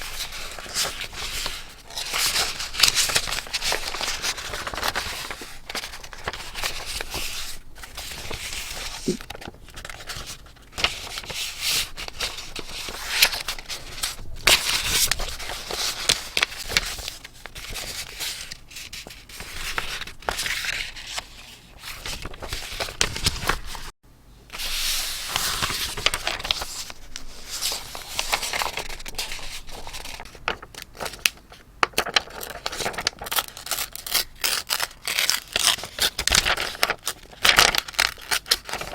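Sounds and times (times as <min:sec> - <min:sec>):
paper rustling and tearing: 0:00.0 - 0:23.9, 0:24.6 - 0:38.9.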